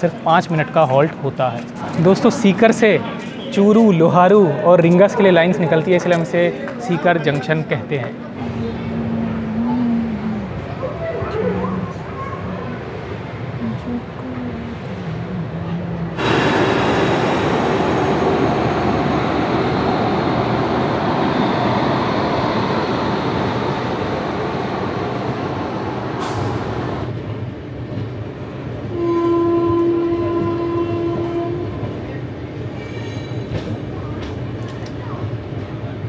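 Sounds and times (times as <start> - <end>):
train wheels rushing: 16.2 - 29.0
train horn blast: 28.9 - 32.0.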